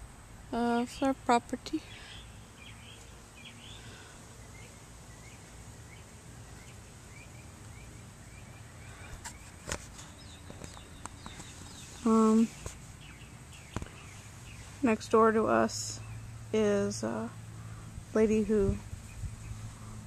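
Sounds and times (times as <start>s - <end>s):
bird chirping: 1.8s - 15.0s, 15.9s - 16.5s, 18.8s - 20.0s.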